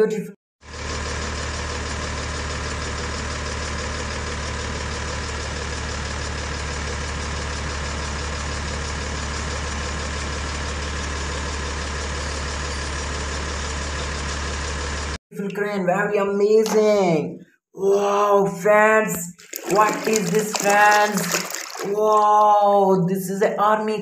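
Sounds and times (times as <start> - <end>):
engine idling hum: 0.7 - 15.2.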